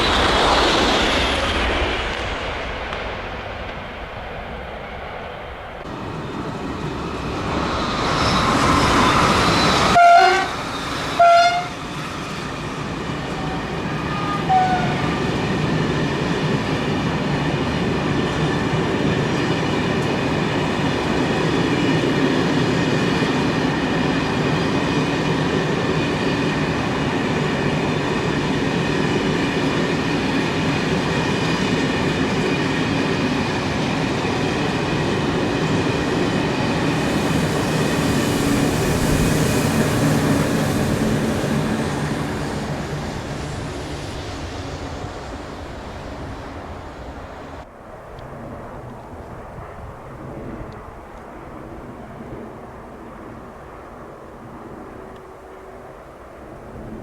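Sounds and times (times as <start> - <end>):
train wheels rumbling: 0.0 - 52.8
train horn blasts: 9.8 - 11.9, 13.3 - 15.2.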